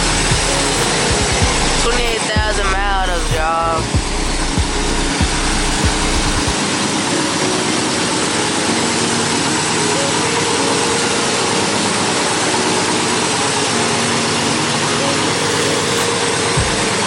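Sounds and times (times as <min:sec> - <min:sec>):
low thumps: 0:00.0 - 0:06.6.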